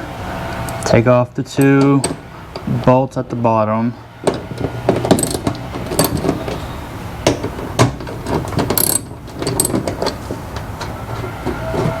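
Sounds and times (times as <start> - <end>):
socket ratchet clicking: 5.1 - 6.3, 8.7 - 9.8.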